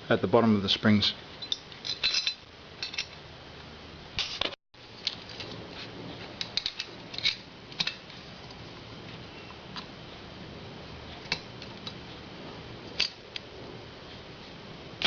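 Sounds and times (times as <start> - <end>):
small steel parts clinking: 1.4 - 3.2.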